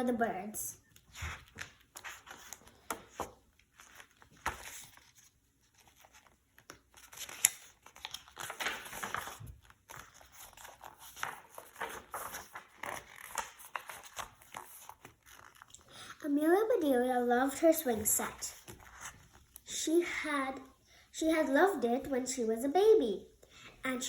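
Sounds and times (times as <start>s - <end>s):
paper pages rustling: 0.8s - 15.9s, 18.0s - 19.7s.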